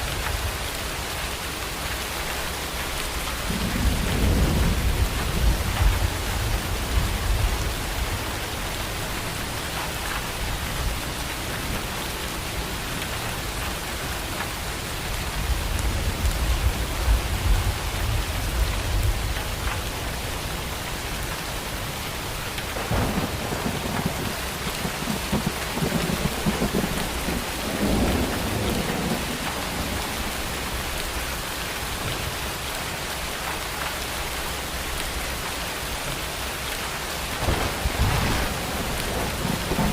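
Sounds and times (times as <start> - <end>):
heavy rain: 0.0 - 39.9
rolling thunder: 3.4 - 8.4, 22.7 - 31.2, 37.3 - 39.9.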